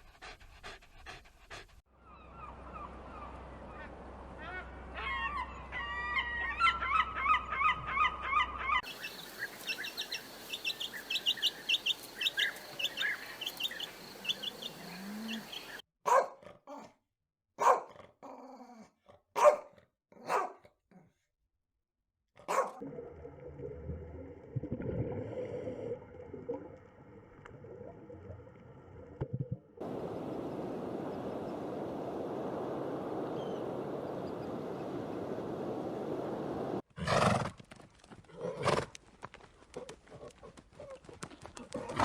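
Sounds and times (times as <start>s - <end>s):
mixed animal sounds: 2.1s - 15.8s
steady rushing noise: 29.8s - 36.8s.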